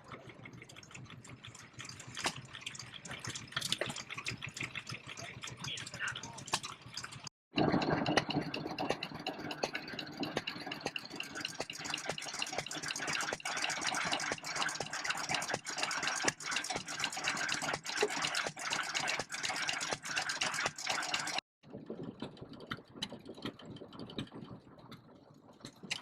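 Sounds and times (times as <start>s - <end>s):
stationary engine running: 0.0s - 25.1s.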